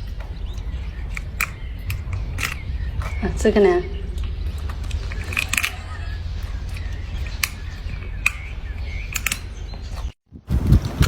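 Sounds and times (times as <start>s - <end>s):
steady low rumble: 0.0s - 11.0s
monkey crunching food: 0.1s - 3.2s, 4.0s - 9.5s.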